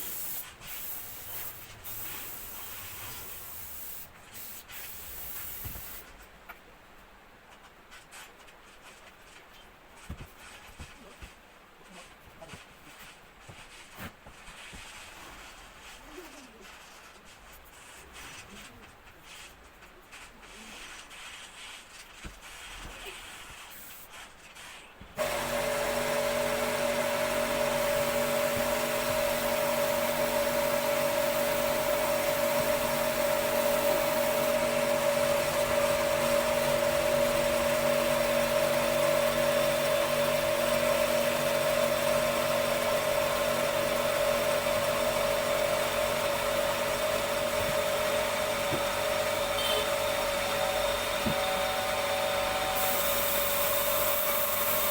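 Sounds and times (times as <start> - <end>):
faint handling sounds: 5.5 - 26.0
power tool motor whining: 25.2 - 54.9.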